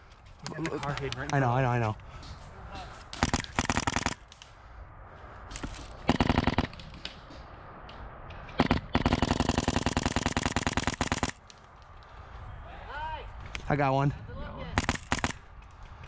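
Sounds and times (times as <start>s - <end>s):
airsoft rifle firing bursts: 3.2s - 4.3s, 6.0s - 6.9s, 8.6s - 11.4s, 14.8s - 15.5s.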